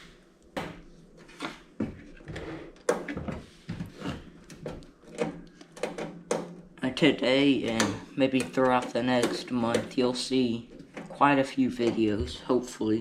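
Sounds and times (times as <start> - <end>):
metal casing clicks and knocks: 4.5 - 6.7.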